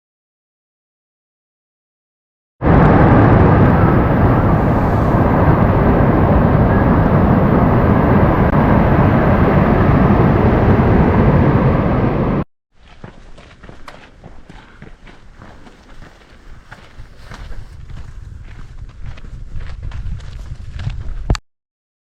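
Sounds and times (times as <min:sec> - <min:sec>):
waterfall roaring: 0:02.7 - 0:12.4.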